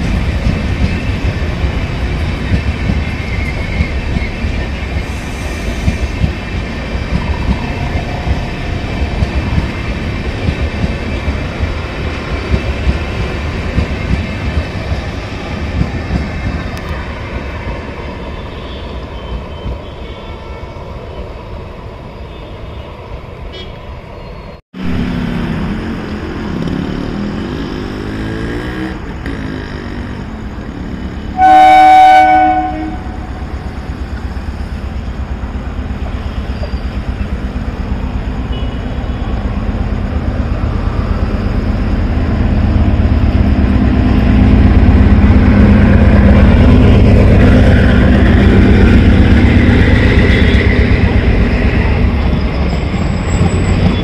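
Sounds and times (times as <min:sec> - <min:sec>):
train wheels clattering on track: 0:00.0 - 0:17.0, 0:42.3 - 0:54.0
train rumbling past: 0:00.0 - 0:54.0
train horn blast: 0:31.4 - 0:33.5.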